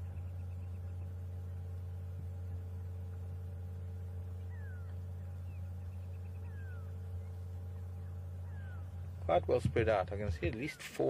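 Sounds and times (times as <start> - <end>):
bird trill: 0.0 - 1.6, 3.8 - 9.1
steady low hum: 0.0 - 11.0.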